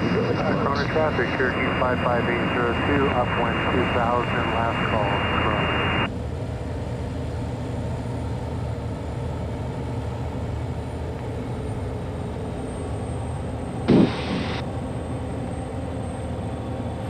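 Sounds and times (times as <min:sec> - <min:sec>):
radio noise burst: 0:00.0 - 0:06.1, 0:13.9 - 0:14.6
turbine engine drone: 0:00.0 - 0:17.0.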